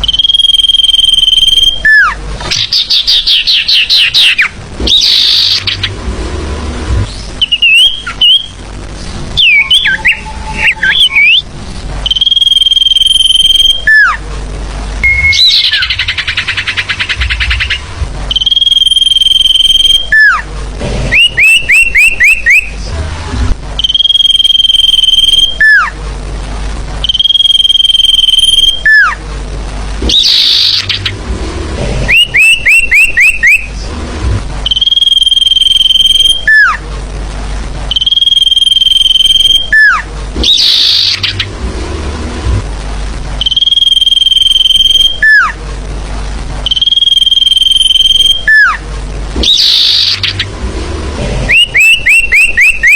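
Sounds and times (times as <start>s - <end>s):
bird whistles and chirps: 0.0s - 5.9s, 7.4s - 8.6s, 9.4s - 11.4s, 12.0s - 14.2s, 15.0s - 20.4s, 21.1s - 22.8s, 23.8s - 25.9s, 30.0s - 31.1s, 32.1s - 33.7s, 37.9s - 41.5s, 49.4s - 50.5s, 51.5s - 52.9s.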